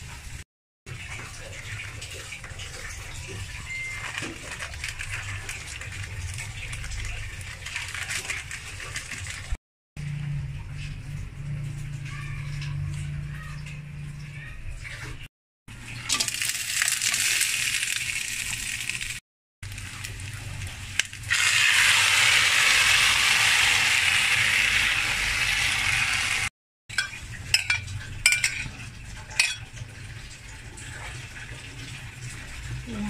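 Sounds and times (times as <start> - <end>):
gravy sizzling and bubbling: 0.0 - 14.5, 15.2 - 33.0
metal utensil clinking on pan: 26.9 - 29.7.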